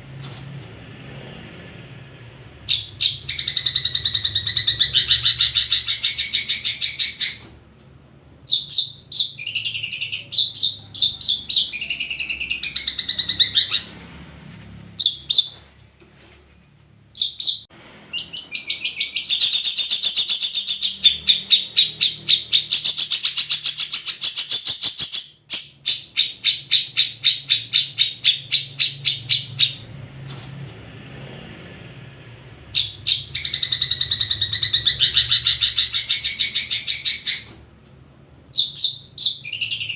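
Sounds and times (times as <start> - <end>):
bird singing trills: 2.7 - 7.4, 8.5 - 14.0, 17.2 - 29.8, 32.8 - 37.5, 38.5 - 39.9.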